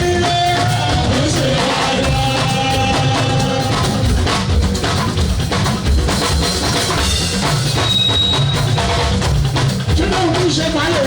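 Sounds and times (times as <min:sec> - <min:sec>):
person singing: 0:00.0 - 0:04.3
drum-heavy music with bass beat: 0:00.0 - 0:11.0.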